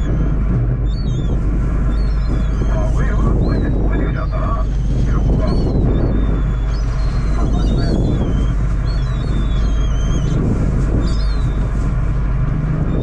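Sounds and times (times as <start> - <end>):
boat engine rumbling: 0.0 - 13.0
wind buffeting microphone: 0.0 - 13.0.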